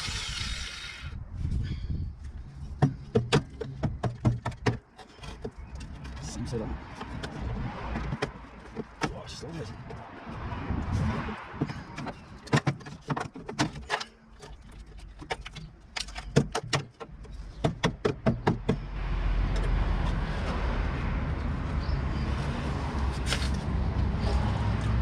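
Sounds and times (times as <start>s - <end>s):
sharp metallic knocks on car body: 2.8s - 4.9s, 16.0s - 18.9s.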